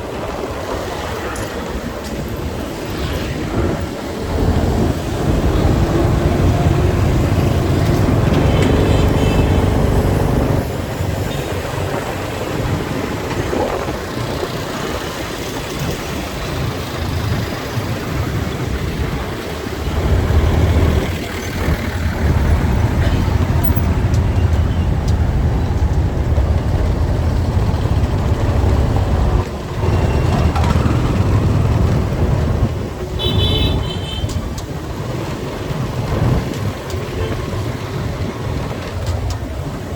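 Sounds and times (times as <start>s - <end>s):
traffic and road noise: 0.0s - 39.9s
vehicle horn toots: 8.0s - 10.5s, 33.2s - 34.4s.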